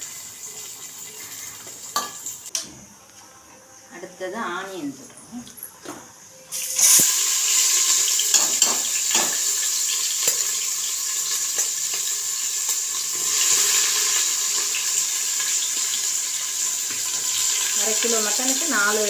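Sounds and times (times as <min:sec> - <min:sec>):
onions sizzling in oil: 0:00.0 - 0:02.6, 0:06.5 - 0:19.0.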